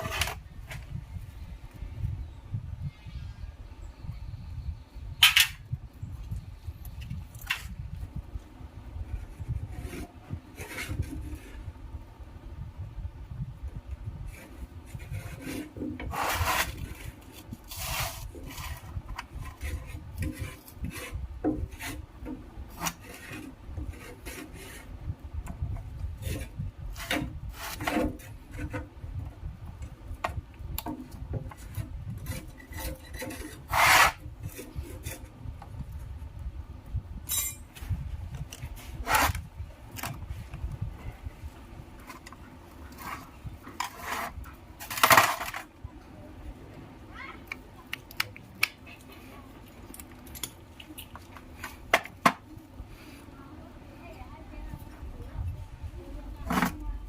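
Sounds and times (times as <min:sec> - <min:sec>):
scraping and rubbing: 0:00.0 - 0:00.9, 0:09.1 - 0:11.7, 0:14.3 - 0:25.0, 0:26.0 - 0:28.9, 0:31.0 - 0:35.4, 0:37.5 - 0:40.6, 0:42.0 - 0:45.7.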